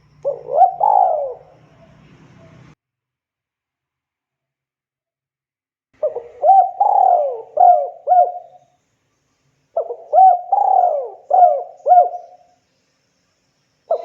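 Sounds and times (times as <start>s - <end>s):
dove cooing: 0.2s - 2.7s, 6.0s - 8.6s, 9.8s - 12.5s.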